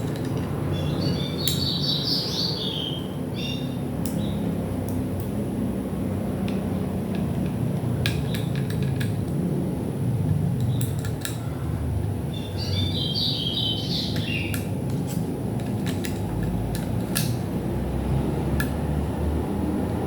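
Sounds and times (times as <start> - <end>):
clicks and taps of tools: 0.0 - 0.6, 6.4 - 9.4, 10.2 - 11.4, 14.1 - 17.4.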